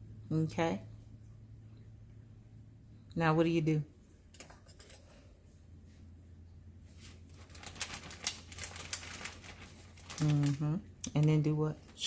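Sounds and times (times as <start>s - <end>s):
soft rustling: 6.8s - 10.6s.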